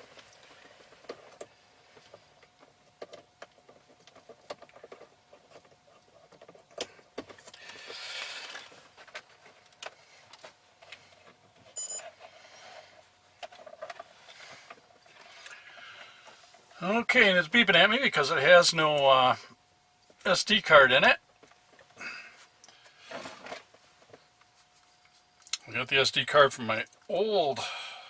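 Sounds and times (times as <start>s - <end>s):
high electronic beep: 11.8s - 12.0s.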